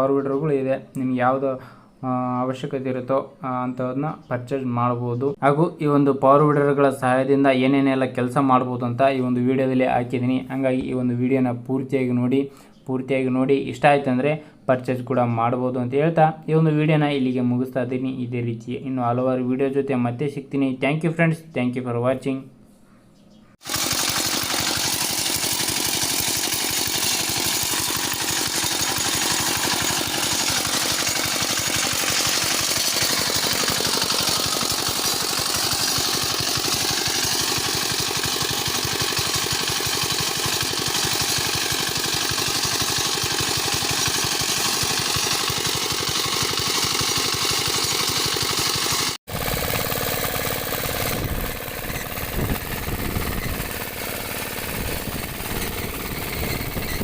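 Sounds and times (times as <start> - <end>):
small weeder engine running: 23.6 - 57.0.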